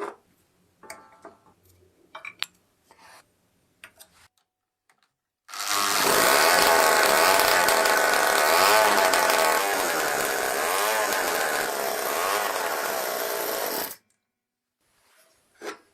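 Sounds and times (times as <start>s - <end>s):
moped two-stroke engine running: 5.5s - 14.0s.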